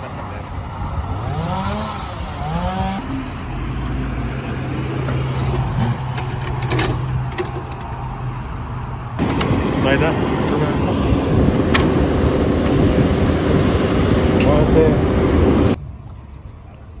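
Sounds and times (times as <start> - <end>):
tractor engine revving: 0.9 - 3.2, 9.2 - 15.8.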